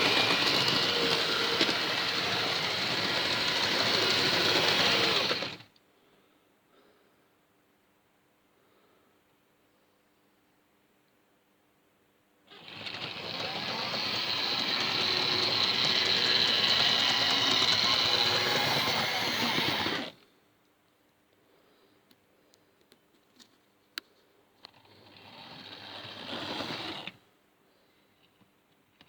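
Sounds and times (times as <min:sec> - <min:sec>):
model train motor whirring: 0:00.0 - 0:05.7, 0:12.5 - 0:20.2, 0:24.6 - 0:27.2.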